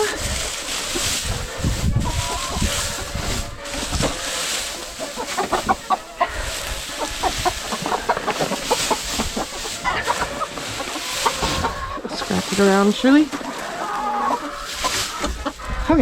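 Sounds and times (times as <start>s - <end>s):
hens clucking: 0.0s - 16.0s
rustling: 0.0s - 16.0s.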